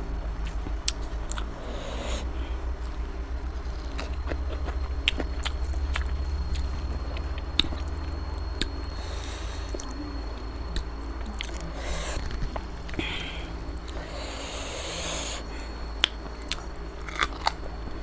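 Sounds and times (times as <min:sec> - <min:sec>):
chewing with wet mouth clicks: 0:00.4 - 0:01.6, 0:03.8 - 0:09.0, 0:16.0 - 0:17.7.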